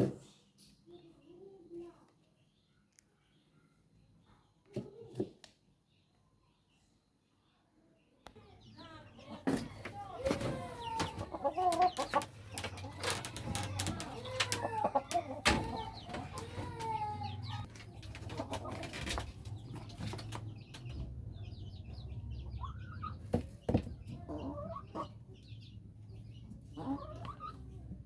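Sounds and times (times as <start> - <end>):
chickens clucking: 8.4 - 28.0.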